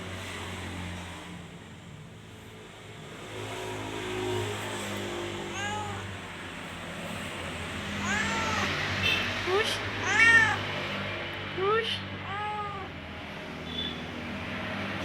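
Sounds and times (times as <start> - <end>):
cat meowing: 5.3 - 6.2, 7.9 - 8.9, 10.0 - 10.7, 12.2 - 13.0.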